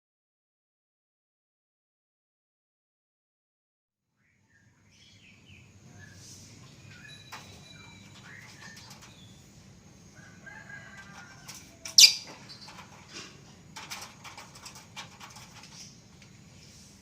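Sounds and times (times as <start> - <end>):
lovebirds chirping: 4.2 - 10.4, 11.7 - 12.7.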